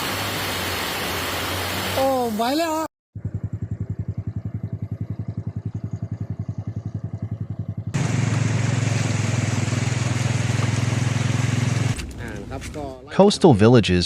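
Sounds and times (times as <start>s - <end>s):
motor running with rapid pulses: 3.2s - 13.0s
engine running steadily: 3.2s - 13.1s
rushing hiss: 8.0s - 13.0s.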